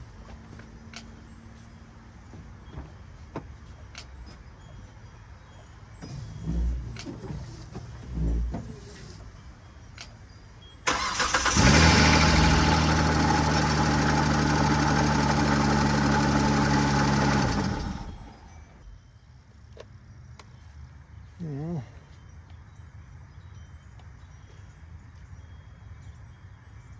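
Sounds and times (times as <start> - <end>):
car starter cranking: 10.8 - 18.7
car engine idling: 10.9 - 18.8.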